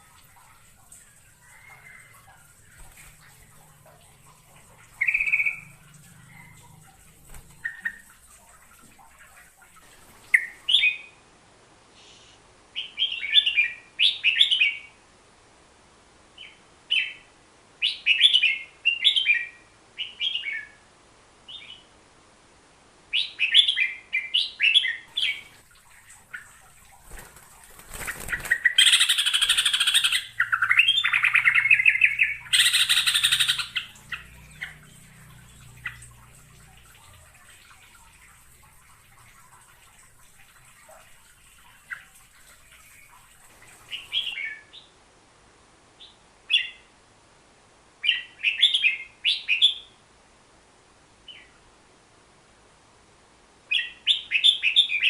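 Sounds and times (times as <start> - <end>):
bird calls: 0.0 - 11.1, 23.2 - 44.9.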